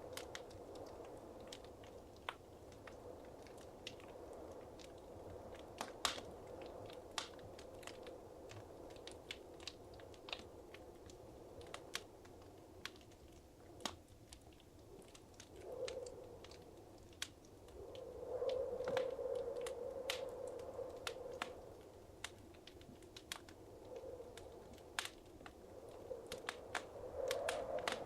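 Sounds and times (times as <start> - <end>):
wood fire crackling: 0.0 - 28.0
rush of flame: 24.2 - 28.0.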